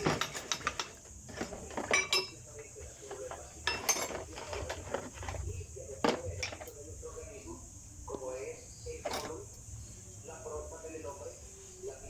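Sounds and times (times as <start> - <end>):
metal tools clinking: 0.0 - 6.8, 8.9 - 9.6.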